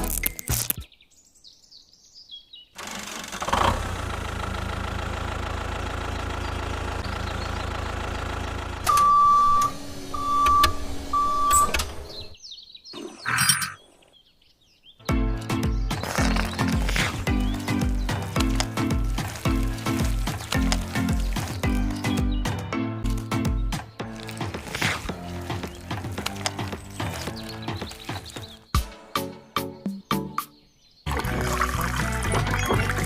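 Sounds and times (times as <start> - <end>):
small engine running: 2.8 - 11.2.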